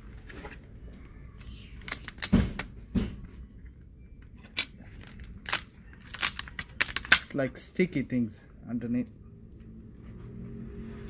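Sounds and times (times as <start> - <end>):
tools and plastic parts clicking: 4.2 - 7.4.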